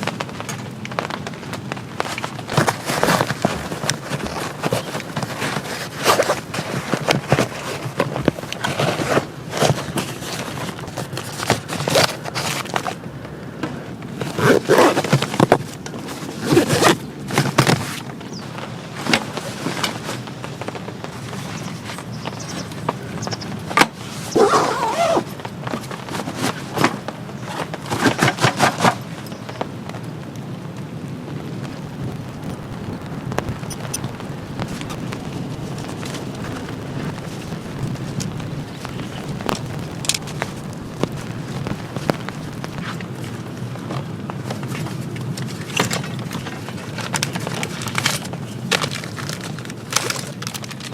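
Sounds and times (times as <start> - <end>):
light rain hiss: 0.3 - 12.4, 31.6 - 43.6.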